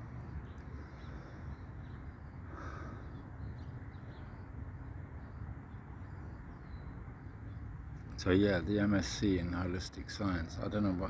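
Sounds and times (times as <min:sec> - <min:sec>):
bird calling: 0:00.0 - 0:04.4
faint high bird sounds: 0:00.0 - 0:11.0.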